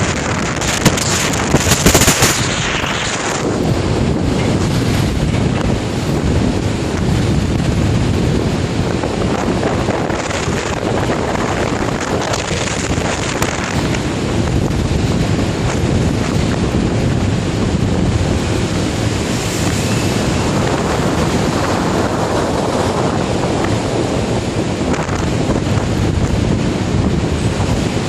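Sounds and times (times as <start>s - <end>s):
heavy sea: 0.0s - 28.0s
strong wind: 0.0s - 28.0s
wind buffeting microphone: 0.0s - 28.0s.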